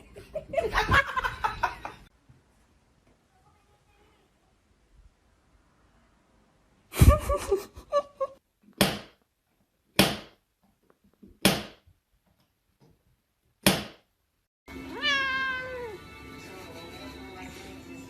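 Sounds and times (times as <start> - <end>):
cat meowing and calling: 14.9 - 16.0.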